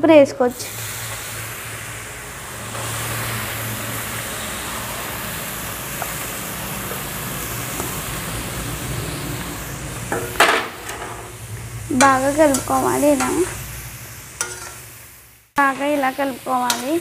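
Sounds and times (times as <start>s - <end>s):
carrot sizzling in hot oil: 0.2s - 17.0s.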